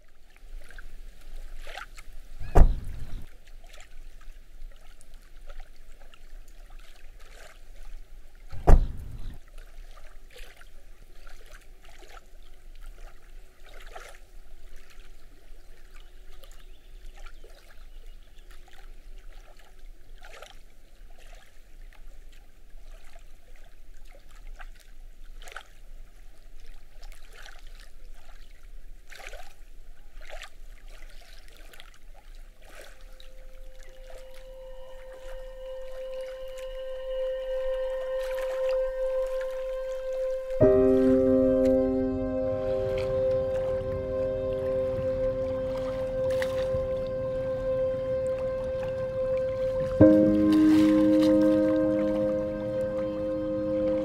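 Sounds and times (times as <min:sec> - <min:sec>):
small waves lapping: 0:00.0 - 0:54.0
heavy low thumps: 0:02.4 - 0:03.3, 0:08.6 - 0:09.4.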